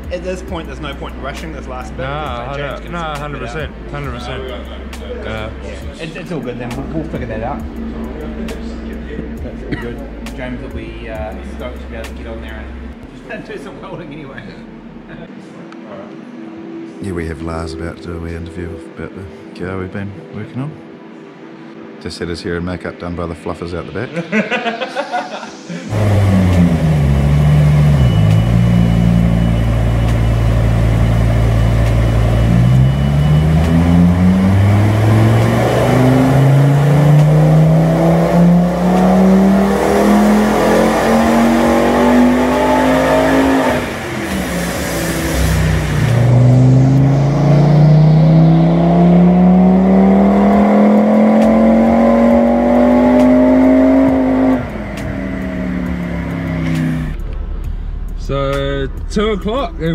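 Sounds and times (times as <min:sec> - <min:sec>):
car engine accelerating: 0:00.0 - 0:14.0, 0:25.8 - 0:58.3.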